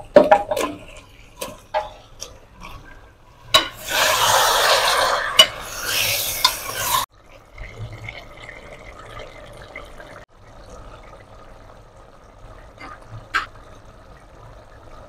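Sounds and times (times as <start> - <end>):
metal spatula scraping a pot: 0.7 - 7.1
chicken sizzling in hot oil: 3.6 - 7.1.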